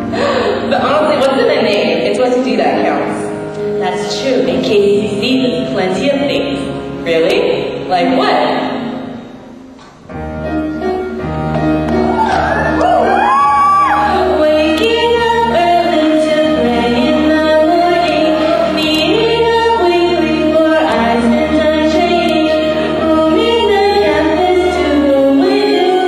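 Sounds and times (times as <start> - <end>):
instrumental accompaniment: 0.0 - 26.0.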